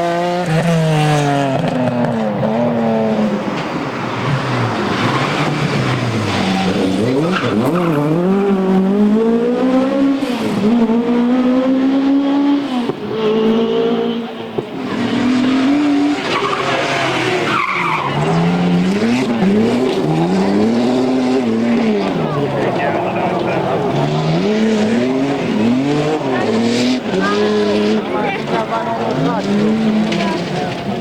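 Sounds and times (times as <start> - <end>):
rally car engine revving: 0.0 - 31.0
tyre squeal: 14.8 - 19.6.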